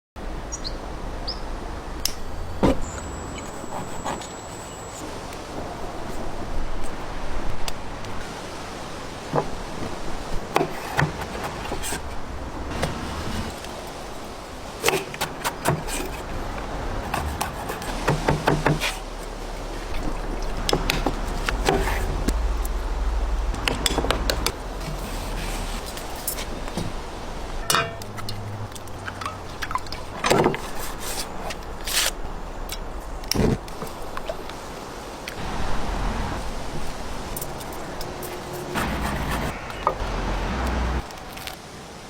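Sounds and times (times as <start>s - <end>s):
steady low hum: 16.0s - 30.2s.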